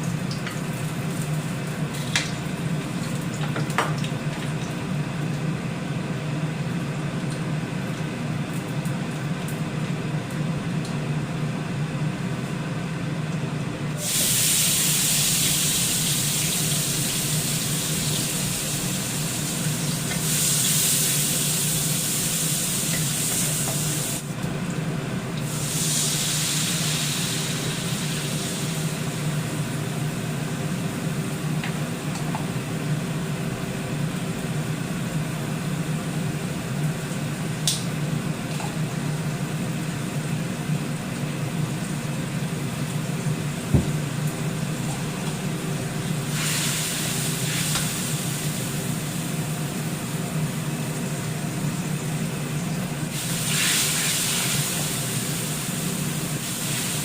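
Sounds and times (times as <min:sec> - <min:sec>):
food sizzling in a frying pan: 0:14.0 - 0:24.2, 0:25.4 - 0:29.8, 0:46.2 - 0:49.5, 0:53.1 - 0:57.0.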